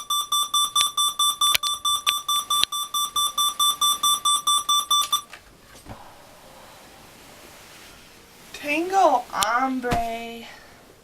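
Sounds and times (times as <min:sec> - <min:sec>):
alarm clock beeping: 0:00.0 - 0:05.3
sharp clicks: 0:00.6 - 0:02.8.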